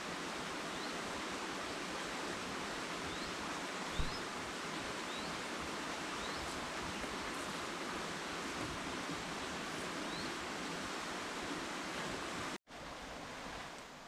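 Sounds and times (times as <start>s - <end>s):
rushing forest ambience: 0.0s - 14.0s
faint rising bird chirps: 3.1s - 4.3s, 5.1s - 5.4s, 6.2s - 6.6s
soft low thump: 4.0s - 4.2s.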